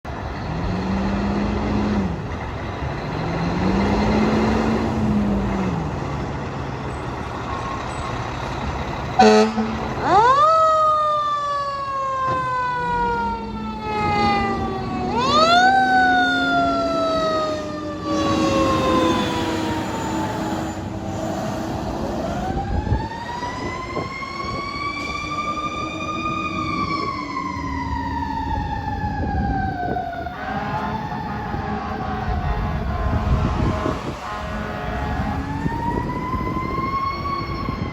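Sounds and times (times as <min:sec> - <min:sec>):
fire truck sirens: 0:00.1 - 0:37.9
heavy truck engines: 0:00.1 - 0:37.9
air horn blast: 0:09.2 - 0:10.0, 0:30.2 - 0:35.8.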